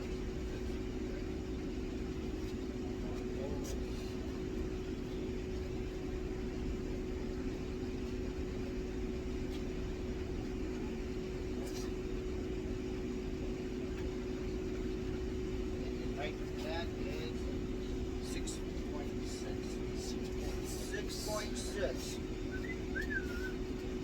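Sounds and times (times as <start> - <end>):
steady machine hum: 0.0 - 24.0.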